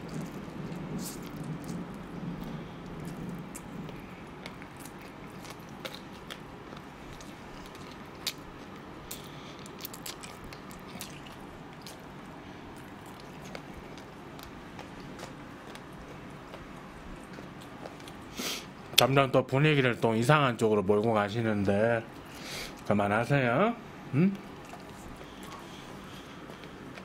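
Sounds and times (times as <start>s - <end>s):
man chewing crunchy food: 0.0s - 18.8s, 24.4s - 27.0s.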